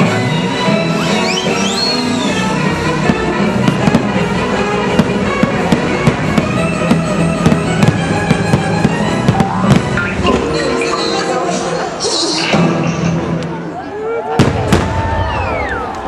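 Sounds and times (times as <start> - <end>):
orchestral music: 0.0 - 13.8
fireworks bangs and crackles: 1.5 - 10.5, 14.4 - 15.6.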